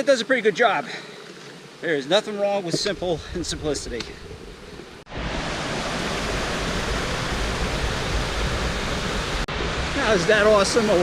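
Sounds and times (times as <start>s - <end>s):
waterfall rushing: 5.1s - 11.0s.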